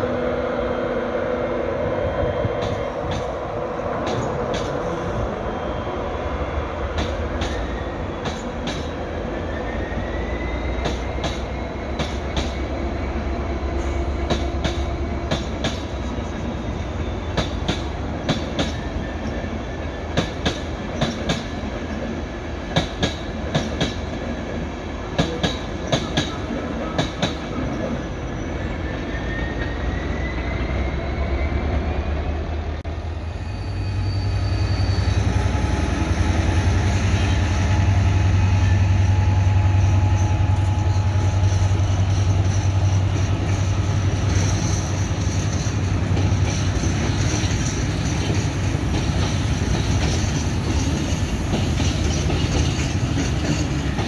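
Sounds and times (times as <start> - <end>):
train wheel clicks over rail joints: 14.2 - 16.0, 22.7 - 24.0, 25.2 - 27.5.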